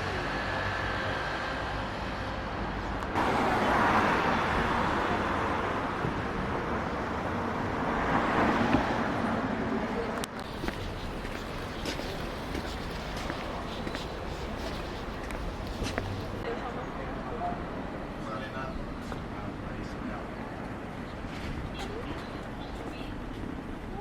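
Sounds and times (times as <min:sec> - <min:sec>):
vehicle engine hum: 0:00.0 - 0:16.6.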